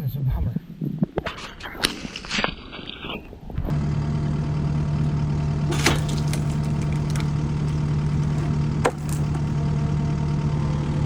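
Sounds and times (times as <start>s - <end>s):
engine idling: 2.2s - 11.0s.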